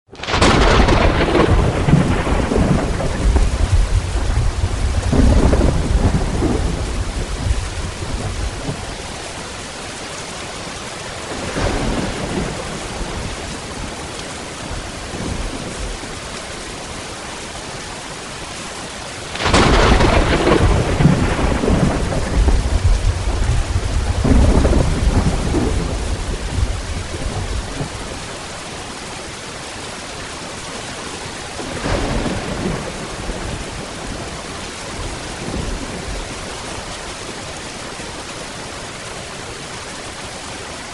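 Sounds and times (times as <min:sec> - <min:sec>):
steady rain: 0:00.1 - 0:40.9
loud thunderclap: 0:00.2 - 0:08.8, 0:11.3 - 0:13.4, 0:19.4 - 0:28.0, 0:31.6 - 0:34.1
rolling thunder: 0:00.2 - 0:08.9, 0:11.3 - 0:14.0, 0:19.4 - 0:28.1, 0:31.6 - 0:34.3.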